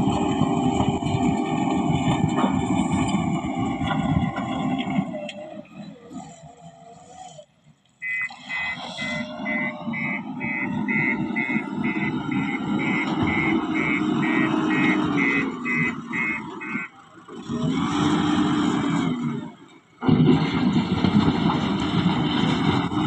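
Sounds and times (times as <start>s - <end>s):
construction machine engine running: 0.0s - 7.0s, 8.0s - 23.0s
reversing alarm beeping: 8.0s - 17.0s.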